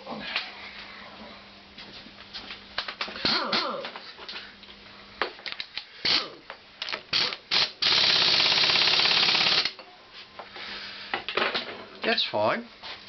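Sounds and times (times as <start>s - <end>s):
fast continuous ratcheting: 7.1s - 9.8s.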